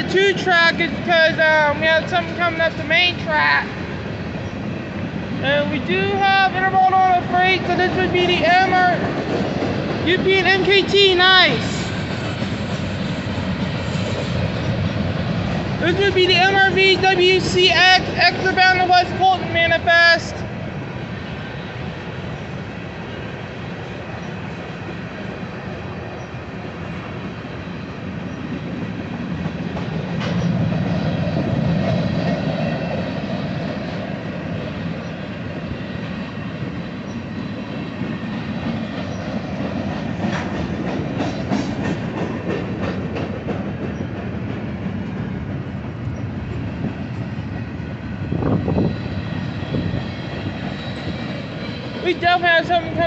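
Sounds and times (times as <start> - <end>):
clickety-clack over rail joints: 0.0 - 53.0
train wheels rumbling: 0.0 - 53.0.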